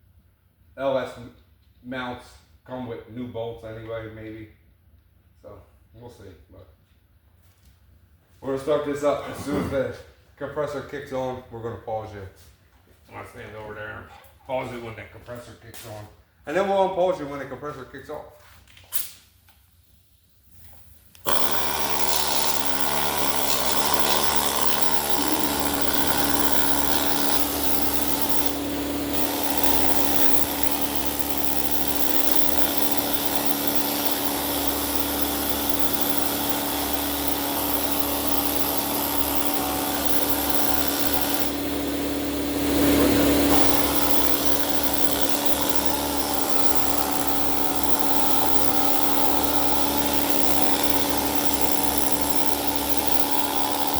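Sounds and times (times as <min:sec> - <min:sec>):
pneumatic needle scaler hammering: 0:21.2 - 0:53.9.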